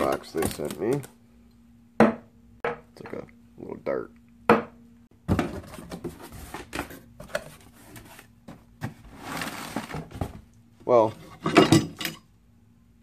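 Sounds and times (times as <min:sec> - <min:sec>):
objects knocking and clattering: 0:00.0 - 0:01.1, 0:04.5 - 0:07.6, 0:11.2 - 0:12.2.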